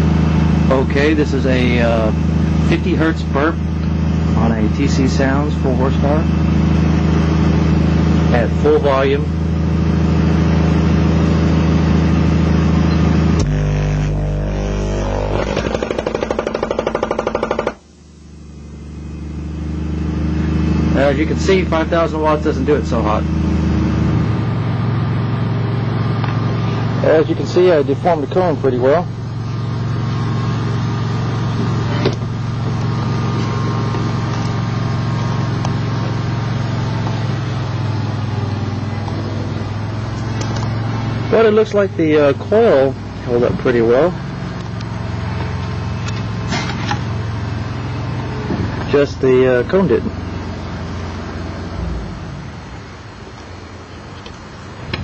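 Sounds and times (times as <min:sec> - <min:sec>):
low engine hum: 0:00.0 - 0:55.0
subwoofer distorted buzz: 0:00.0 - 0:55.0
speaker cone fluttering rattle: 0:13.1 - 0:18.6.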